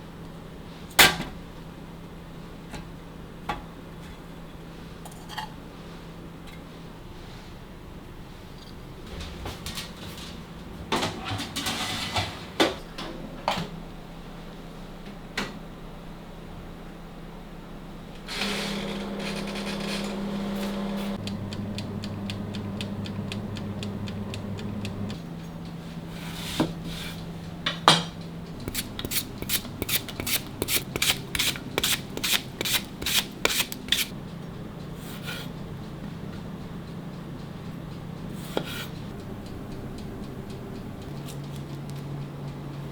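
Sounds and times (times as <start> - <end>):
small motor rasping: 18.3 - 25.2.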